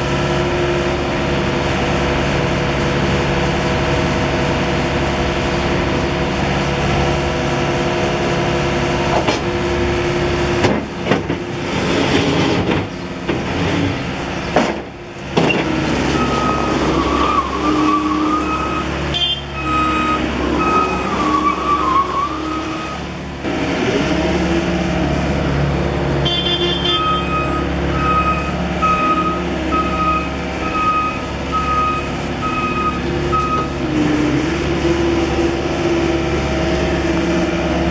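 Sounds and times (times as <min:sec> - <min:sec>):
diesel engine running: 0:00.0 - 0:37.9
backup alarm beeping: 0:27.0 - 0:33.8.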